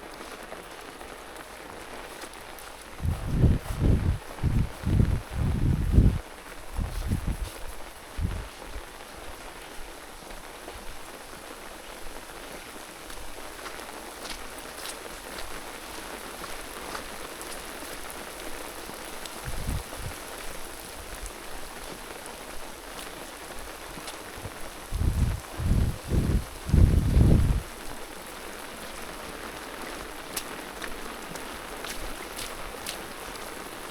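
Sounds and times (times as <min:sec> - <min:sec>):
steady rain: 0:00.0 - 0:33.9
low thumps: 0:03.0 - 0:06.2, 0:24.4 - 0:27.6.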